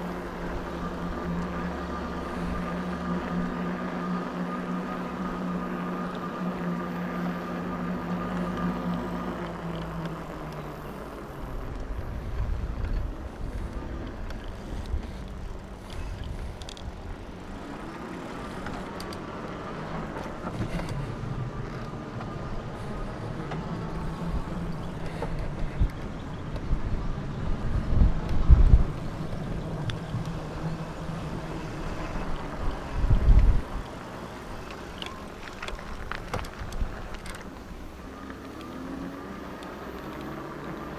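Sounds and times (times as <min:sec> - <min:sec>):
wind buffeting microphone: 0:10.2 - 0:38.3.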